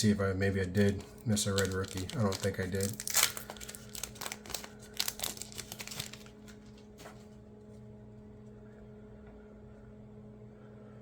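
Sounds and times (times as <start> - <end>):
faint electrical hum: 0.0 - 11.0
cards and wrapper rustling: 0.5 - 7.2.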